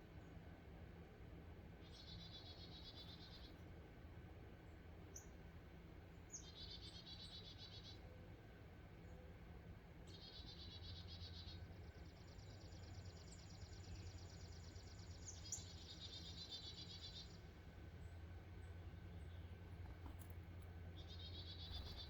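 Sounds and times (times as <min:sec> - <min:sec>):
steady low hum: 0:10.8 - 0:22.0.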